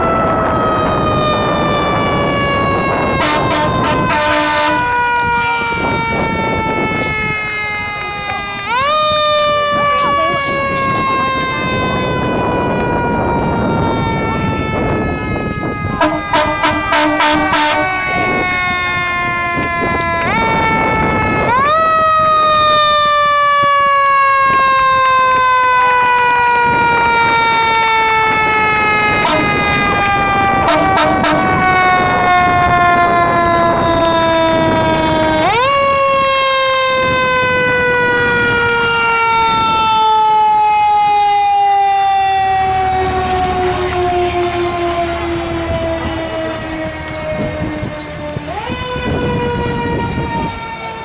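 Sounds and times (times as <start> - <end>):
mechanical siren wailing: 0.0 - 51.0
air horn blasts: 3.0 - 5.1, 15.9 - 18.9, 29.1 - 34.6.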